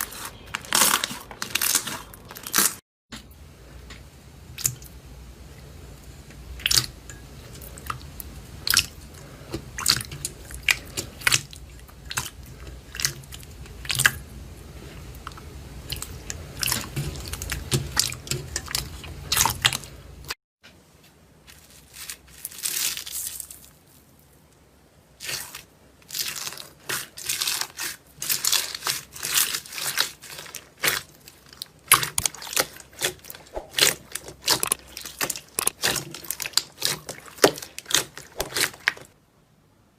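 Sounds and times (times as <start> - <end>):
low background hum: 0.0 - 39.9
slime crackling and popping: 0.1 - 2.8, 25.2 - 39.2.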